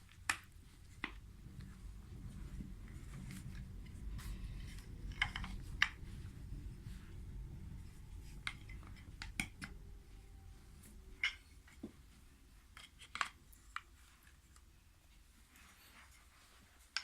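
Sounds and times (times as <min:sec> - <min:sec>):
wooden toy train track clicking: 0:04.6 - 0:06.1, 0:11.2 - 0:11.9.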